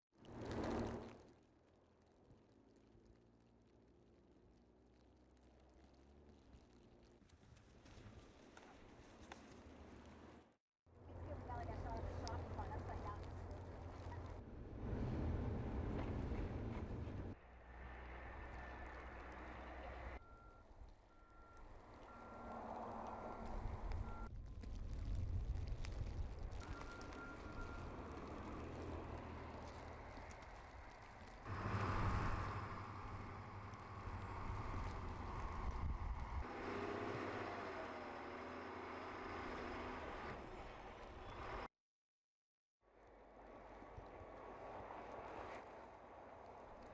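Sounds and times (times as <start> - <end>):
loud low vehicle rumble: 10.9 - 41.7
low engine hum: 11.0 - 41.6
vehicle reversing beeps: 20.2 - 24.3, 26.5 - 28.7.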